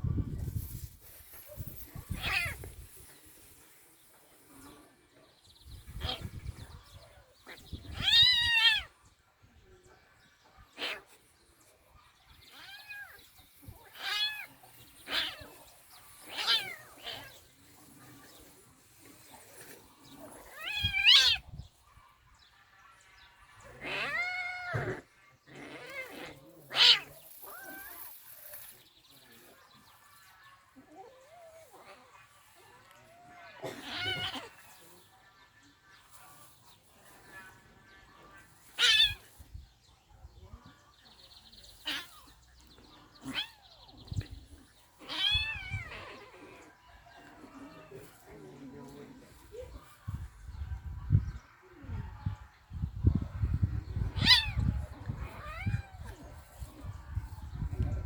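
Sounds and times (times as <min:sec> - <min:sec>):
cat meowing and yowling: 0:07.9 - 0:08.9, 0:16.3 - 0:17.3, 0:20.5 - 0:21.4, 0:23.8 - 0:24.8, 0:26.7 - 0:27.8, 0:38.8 - 0:39.3, 0:45.0 - 0:46.1, 0:54.0 - 0:56.2.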